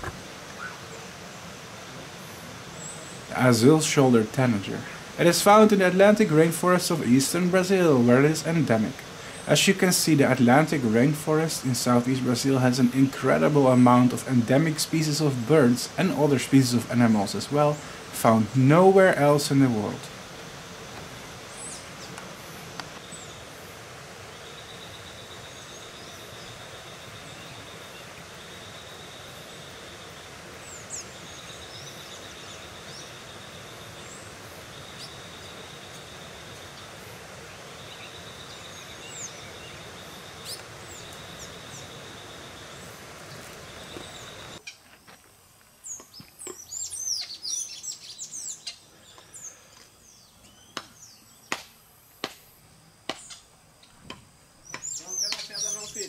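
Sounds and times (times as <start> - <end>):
steady hiss: 0.0 - 56.0
rapid high bird chirps and calls: 0.5 - 1.5, 24.3 - 44.8, 45.8 - 51.6, 54.6 - 56.0
high bird chirps: 45.9 - 49.5, 54.6 - 56.0
buzzy bird trill: 54.6 - 56.0.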